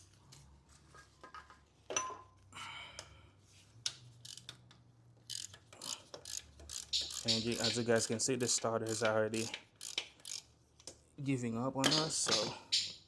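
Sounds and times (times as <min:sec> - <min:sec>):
socket wrench metallic clicks: 0:05.3 - 0:08.2, 0:08.9 - 0:10.4.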